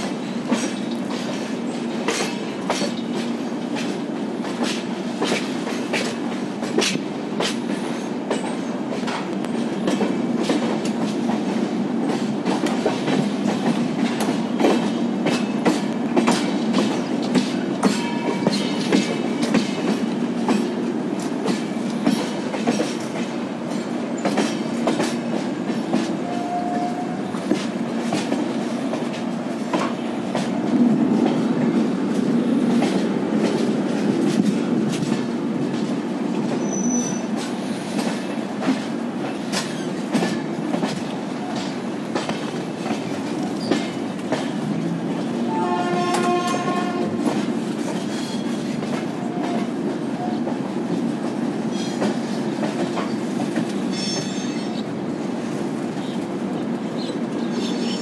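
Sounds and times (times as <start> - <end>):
wheels clicking over rail joints: 0.0 - 54.9
train coaches rumbling: 0.0 - 58.0
train horn: 26.2 - 27.4, 45.4 - 47.3, 49.2 - 50.5
high wheel squeal: 36.6 - 37.3.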